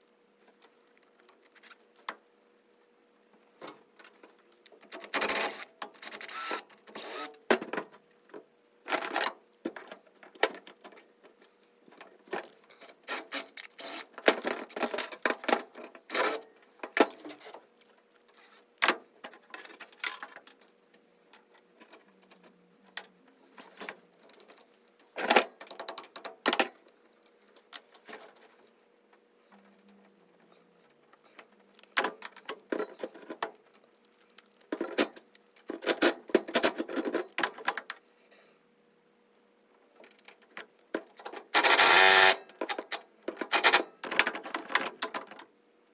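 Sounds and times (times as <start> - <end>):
ratchet wrench clicking: 5.1 - 7.3, 13.3 - 14.1, 41.6 - 42.4.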